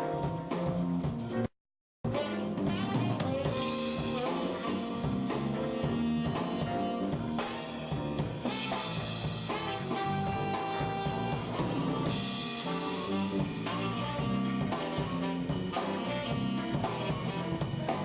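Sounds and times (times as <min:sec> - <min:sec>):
bass: 0:00.0 - 0:18.0
drum kit: 0:00.0 - 0:18.0.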